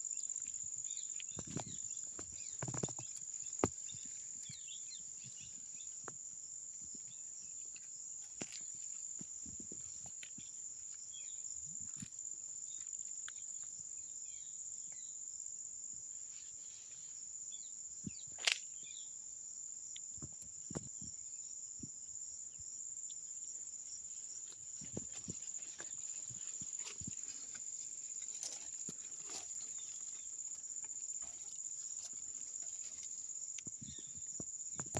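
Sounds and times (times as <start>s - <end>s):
insects droning: 0.0s - 34.9s
faint rustles: 24.0s - 34.6s.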